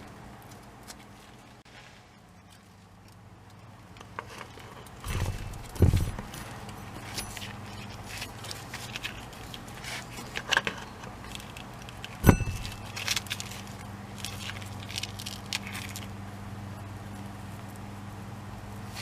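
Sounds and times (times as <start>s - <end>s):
low hum: 12.2s - 19.0s.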